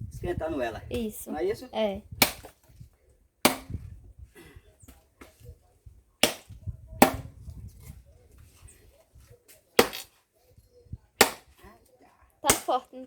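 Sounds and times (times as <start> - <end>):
axe striking firewood: 2.2 - 2.7, 3.4 - 4.0, 6.2 - 7.6, 9.8 - 10.2, 11.2 - 11.6, 12.5 - 12.8.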